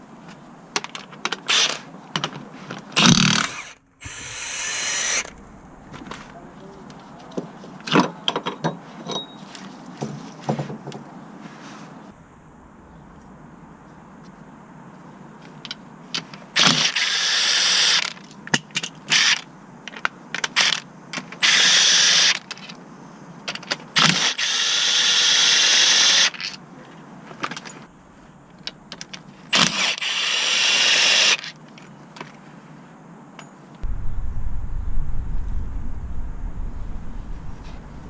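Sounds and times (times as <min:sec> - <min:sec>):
cordless power tool on bolts: 0:03.0 - 0:06.1, 0:24.0 - 0:26.2.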